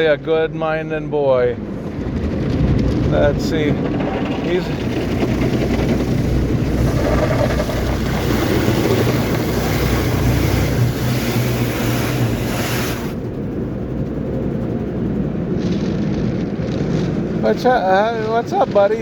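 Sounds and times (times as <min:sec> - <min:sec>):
low hum: 0:00.0 - 0:19.0
car wash water spray: 0:03.2 - 0:13.7.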